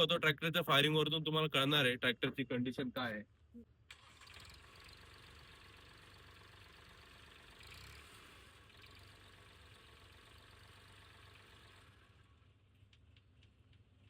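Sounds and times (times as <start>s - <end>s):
diesel tractor engine idling: 4.0s - 12.2s.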